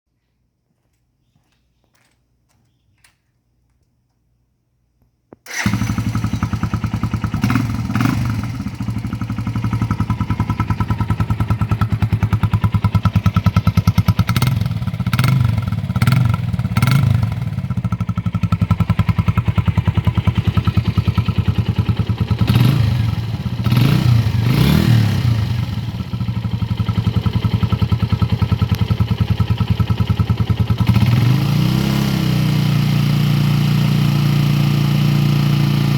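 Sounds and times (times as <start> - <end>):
motorcycle engine starting and idling: 5.4 - 35.9.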